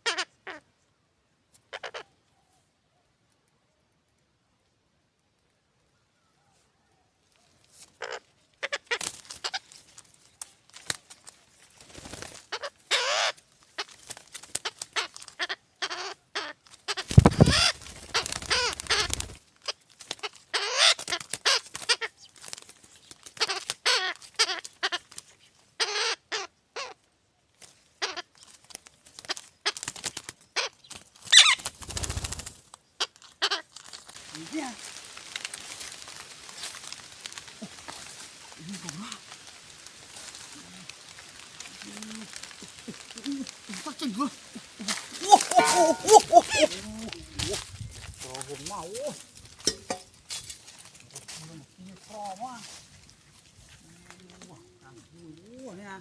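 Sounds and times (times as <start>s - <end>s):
young birds squawking: 12.1s - 22.6s, 29.2s - 36.2s, 36.8s - 49.2s.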